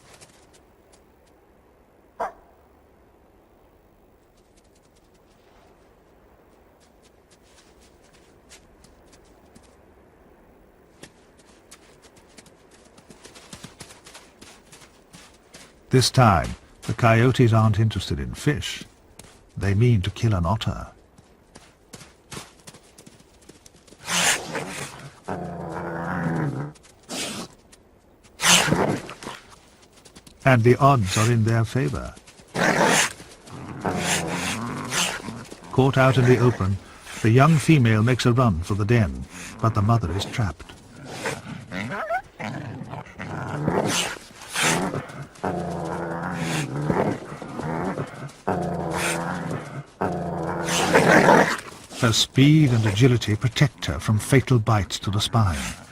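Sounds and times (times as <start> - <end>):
animals snarling and hissing: 24.0 - 27.6, 28.4 - 29.6, 32.5 - 37.3, 40.7 - 52.1
low animal growl: 40.9 - 51.6.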